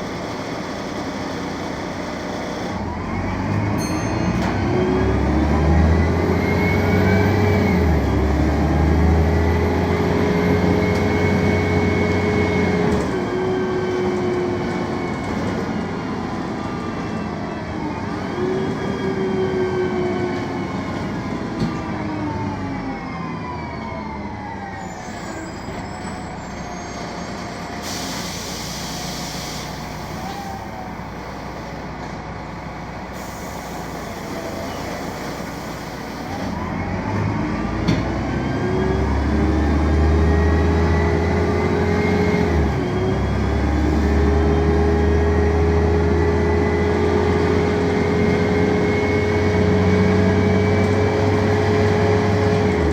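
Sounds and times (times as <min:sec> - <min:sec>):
bus engine: 0:00.0 - 0:52.9
air hiss bursts: 0:27.8 - 0:30.4, 0:33.2 - 0:36.3.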